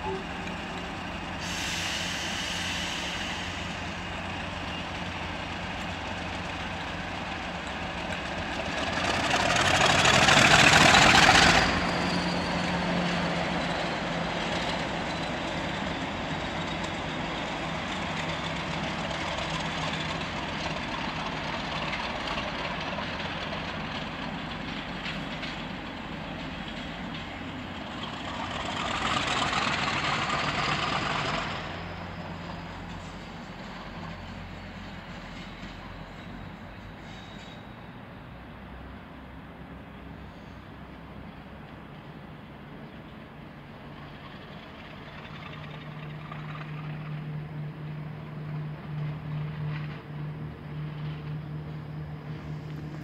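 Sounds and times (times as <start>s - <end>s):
train engine humming: 0.0s - 53.0s.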